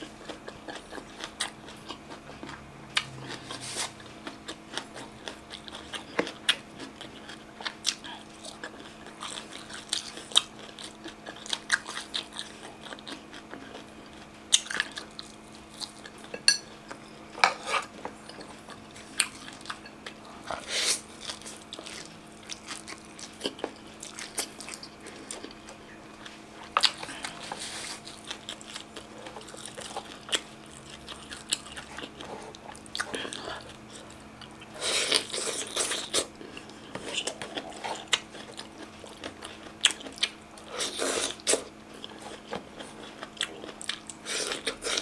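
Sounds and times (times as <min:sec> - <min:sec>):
faint steady hum: 0:00.0 - 0:45.0
person chewing food: 0:00.0 - 0:45.0.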